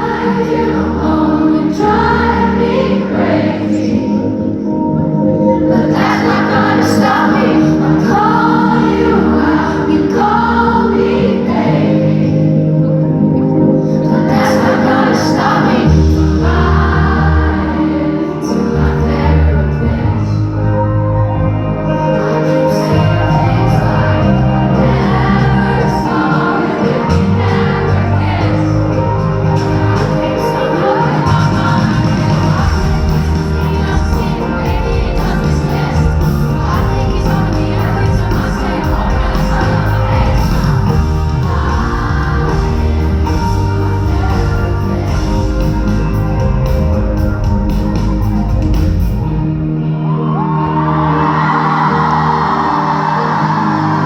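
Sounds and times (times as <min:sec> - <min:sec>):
pop song over sound system: 0:00.0 - 0:54.0
woman singing with band: 0:22.4 - 0:46.7
crowd shouting: 0:49.9 - 0:54.0.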